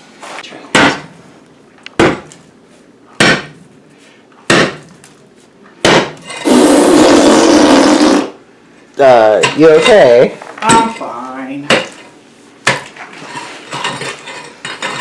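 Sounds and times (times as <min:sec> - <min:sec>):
hand tool striking concrete: 0:05.9 - 0:06.5, 0:09.4 - 0:11.1, 0:11.7 - 0:15.0
loud sustained noise: 0:06.4 - 0:08.4.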